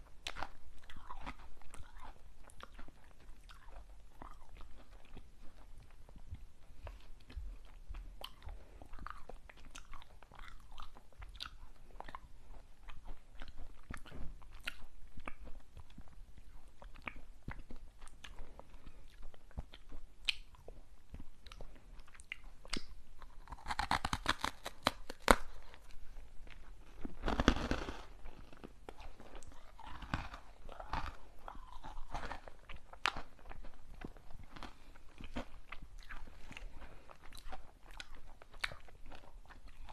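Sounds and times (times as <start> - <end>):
crisp bites and chewing crackles: 22.7 - 39.9.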